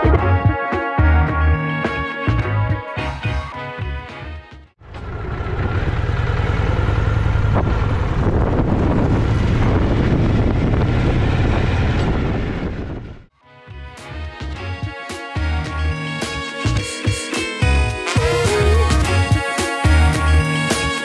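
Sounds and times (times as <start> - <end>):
motorcycle engine pulsing: 4.8 - 13.2.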